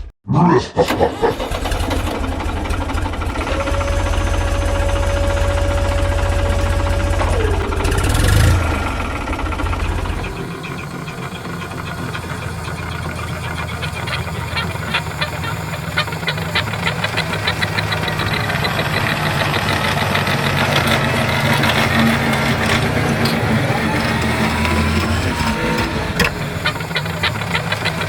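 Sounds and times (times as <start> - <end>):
engine running with knocking: 1.4 - 28.0
tone dropping in pitch: 3.2 - 19.3.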